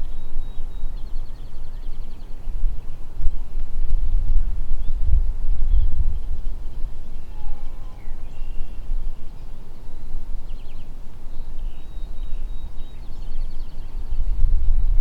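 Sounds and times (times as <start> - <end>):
bird trill: 0.0 - 2.6, 5.7 - 14.4
songbirds chirping: 0.0 - 15.0
wind rumble on microphone: 0.0 - 15.0.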